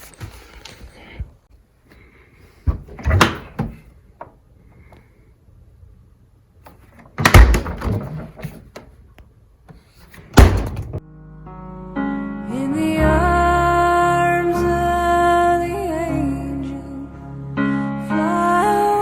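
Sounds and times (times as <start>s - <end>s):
door opening and shutting: 2.6s - 3.9s, 7.0s - 8.9s, 10.2s - 11.0s
loud clunk: 10.4s - 11.0s.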